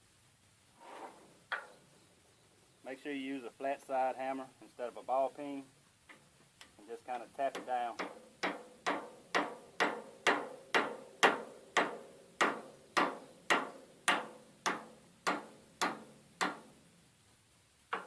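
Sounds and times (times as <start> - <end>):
hammer tapping metal: 7.5 - 16.7.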